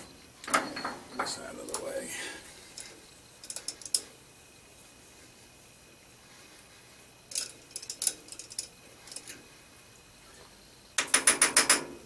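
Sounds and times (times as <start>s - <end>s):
light metallic clicks and clinks: 2.7s - 4.1s, 7.3s - 9.4s.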